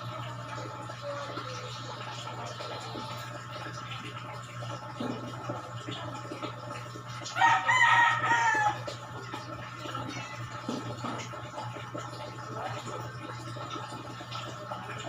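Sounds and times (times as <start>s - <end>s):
rooster crowing: 7.4s - 9.0s.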